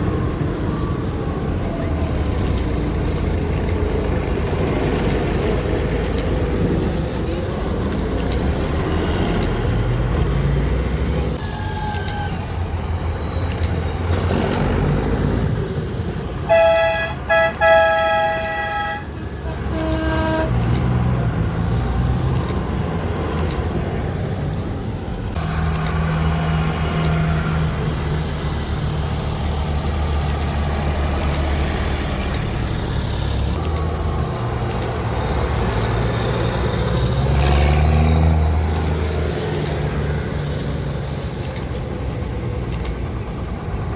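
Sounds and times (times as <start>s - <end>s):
tractor engines running: 0.0s - 43.9s
engine revving: 1.9s - 11.4s, 12.7s - 43.9s
horn blasting: 16.4s - 21.4s.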